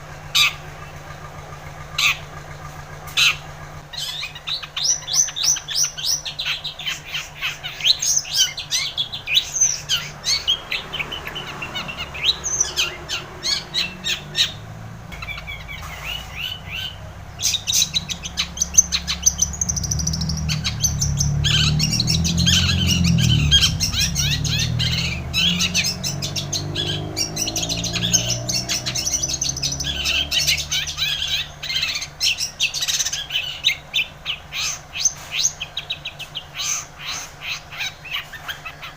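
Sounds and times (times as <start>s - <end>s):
bird chattering song: 0.3s - 38.9s
low rumble: 12.0s - 30.8s.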